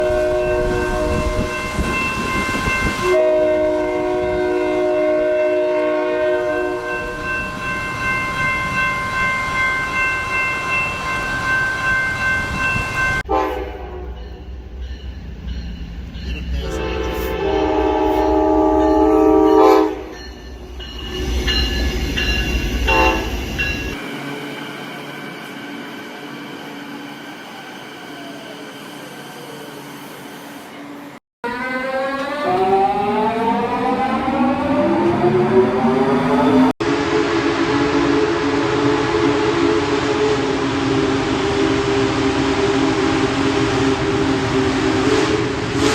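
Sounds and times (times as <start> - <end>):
train horn: 0.0 - 7.8, 13.2 - 14.4, 16.6 - 20.3, 22.8 - 23.4, 36.8 - 45.9.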